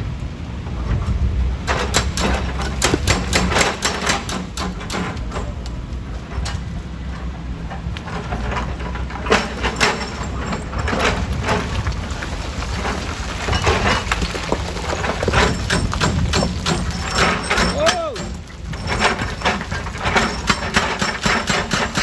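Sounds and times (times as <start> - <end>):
stone crusher rumbling: 1.7 - 4.9, 7.7 - 22.0
rocks cracking and knocking: 2.2 - 4.4, 9.2 - 22.0.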